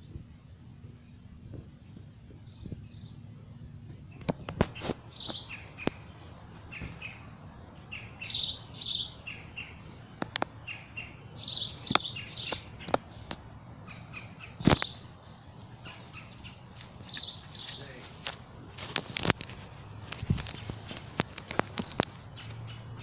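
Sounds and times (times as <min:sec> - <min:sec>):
bird chirping: 0:01.0 - 0:23.0.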